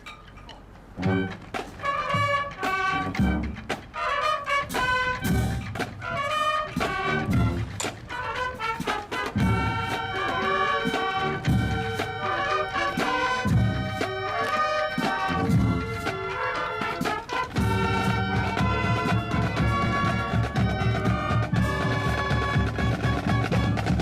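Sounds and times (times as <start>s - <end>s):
brass band playing: 0.9s - 24.0s
low drum beat: 6.8s - 7.8s, 17.5s - 24.0s.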